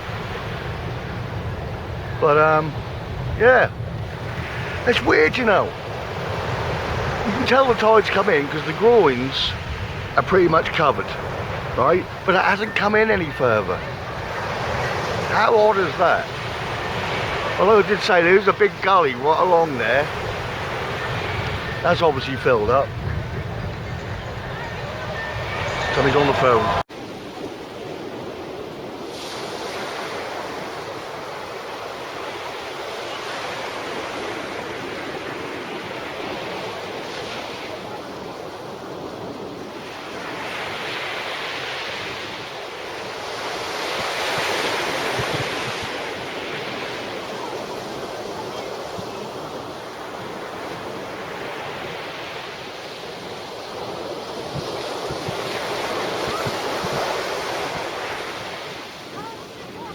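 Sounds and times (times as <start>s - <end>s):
wind buffeting microphone: 0.0s - 7.8s, 8.5s - 15.3s, 20.1s - 29.2s, 43.8s - 52.0s, 53.0s - 59.9s
surf breaking on shingle beach: 0.0s - 59.9s.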